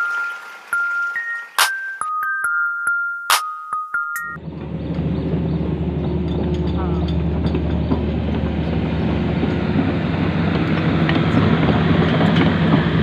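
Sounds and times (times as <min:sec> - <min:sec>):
loud engine drone: 0:04.4 - 0:13.0.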